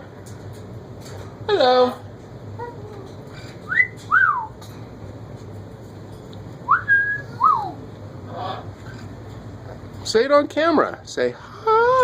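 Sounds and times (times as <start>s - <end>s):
parrot wolf whistle: 3.7s - 4.5s, 6.7s - 7.8s.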